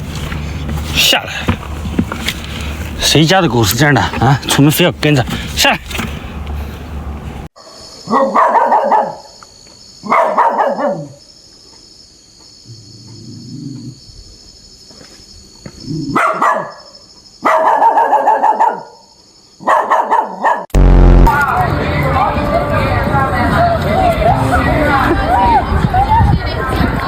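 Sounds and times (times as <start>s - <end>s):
dog barking: 8.0s - 9.4s, 10.0s - 11.2s, 16.1s - 20.7s.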